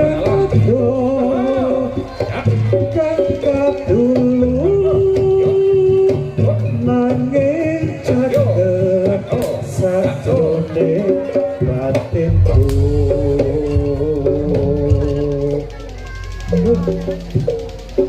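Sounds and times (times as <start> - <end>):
low percussion: 0.0 - 18.0
wavering ensemble melody: 12.3 - 18.0.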